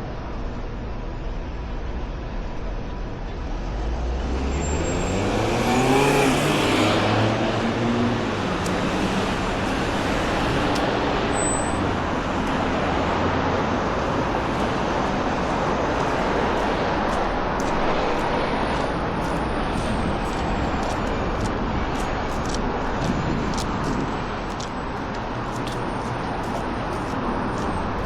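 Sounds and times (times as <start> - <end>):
road traffic noise: 0.0 - 28.0
vehicle accelerating past: 4.0 - 10.3.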